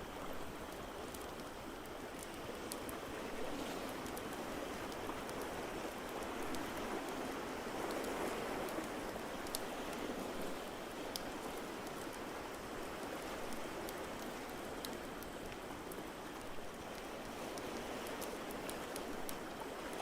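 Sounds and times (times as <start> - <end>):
fireplace crackling and popping: 7.9 - 15.6.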